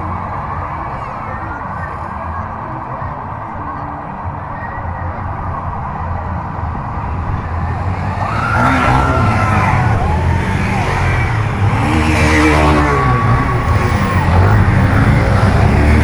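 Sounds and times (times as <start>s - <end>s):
vehicle engines driving past: 5.6s - 16.0s.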